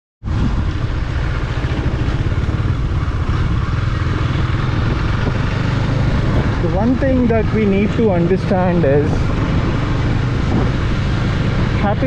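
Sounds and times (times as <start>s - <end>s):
motorcycle engine idling: 0.5s - 8.8s.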